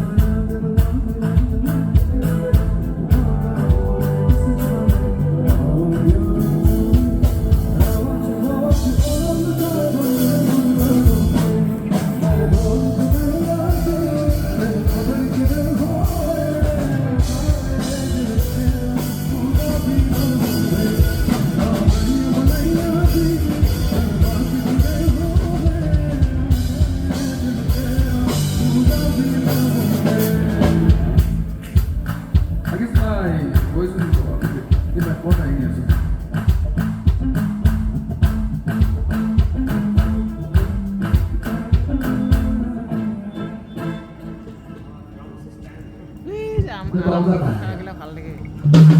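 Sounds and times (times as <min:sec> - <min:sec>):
person singing: 0:00.0 - 0:31.8, 0:38.7 - 0:44.5
drum kit steady beat: 0:00.0 - 0:42.8, 0:48.6 - 0:48.9
guitar: 0:00.0 - 0:48.9.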